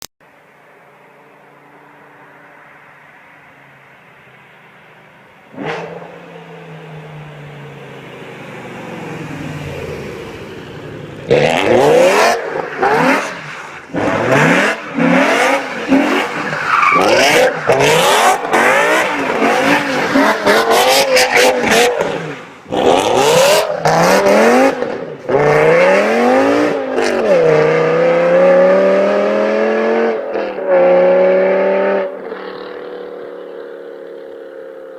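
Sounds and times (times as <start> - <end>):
car engine revving hard: 11.2 - 32.9
tires squealing: 11.3 - 24.8.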